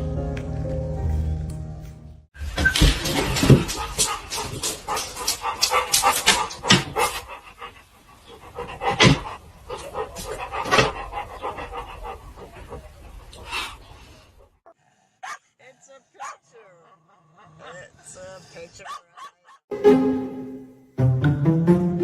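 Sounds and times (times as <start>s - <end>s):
background music: 0.0s - 2.2s, 19.7s - 22.0s
dog panting rapidly: 3.4s - 14.0s.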